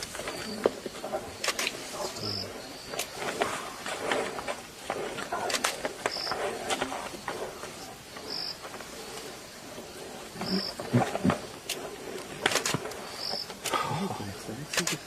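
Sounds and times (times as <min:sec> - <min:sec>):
insects chirping: 0:00.0 - 0:15.0
rustling: 0:00.0 - 0:15.0
sharp clicks: 0:05.2 - 0:06.9, 0:11.6 - 0:13.8, 0:14.7 - 0:15.0.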